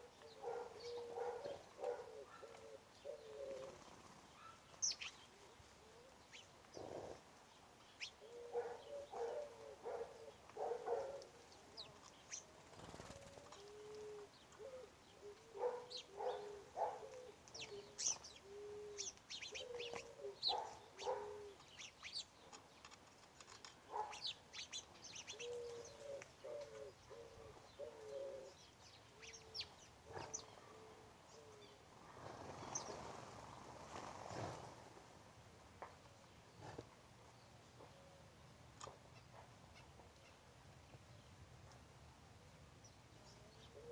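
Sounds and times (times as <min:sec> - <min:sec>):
doves cooing: 0:00.0 - 0:07.3, 0:08.2 - 0:21.8, 0:25.2 - 0:34.9, 0:43.6 - 0:43.9
small birds chirping: 0:00.0 - 0:34.8.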